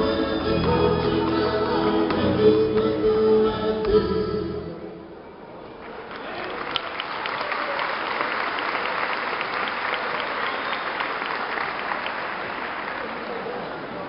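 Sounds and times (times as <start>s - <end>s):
audience applauding and cheering: 5.8s - 14.0s.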